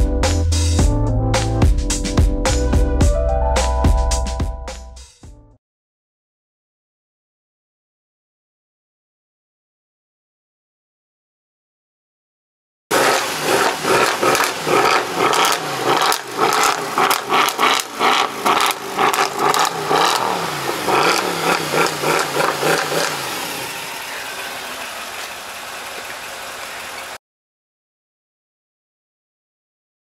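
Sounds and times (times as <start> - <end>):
car engine revving and idling: 12.9 - 27.2.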